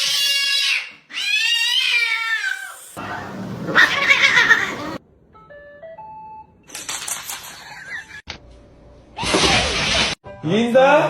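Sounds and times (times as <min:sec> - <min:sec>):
cat meowing: 0:00.1 - 0:05.0.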